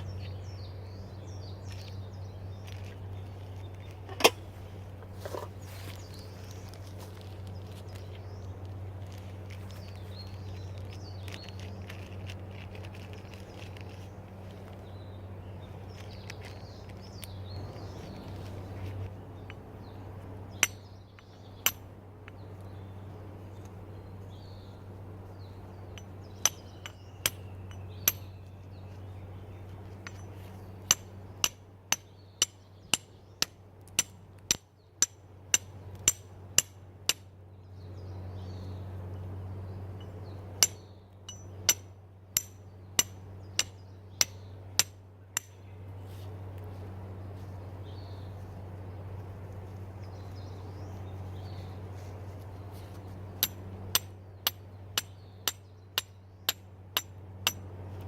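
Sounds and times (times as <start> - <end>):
flint striking steel: 4.1 - 5.6, 20.6 - 21.9, 25.9 - 28.5, 30.0 - 37.3, 40.6 - 45.6, 53.4 - 57.7.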